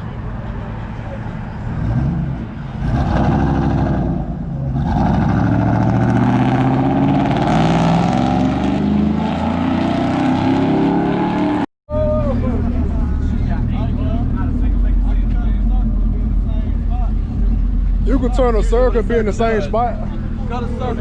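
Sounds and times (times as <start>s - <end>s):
pickup truck engine running: 12.2s - 21.0s.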